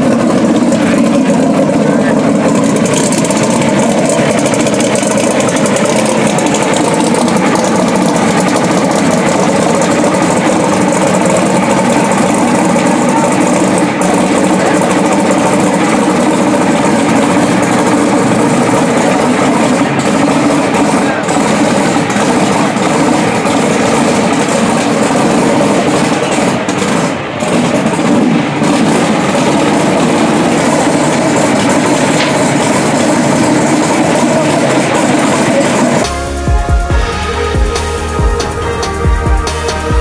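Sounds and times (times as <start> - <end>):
crowd chatter: 0.0 - 40.0
race car engines idling: 0.0 - 40.0.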